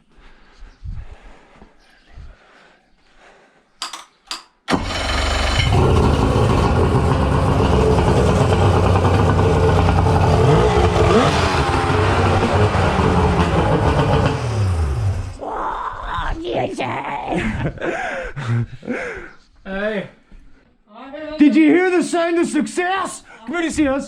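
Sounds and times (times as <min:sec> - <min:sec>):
outboard motor starting and running: 0:04.7 - 0:15.4.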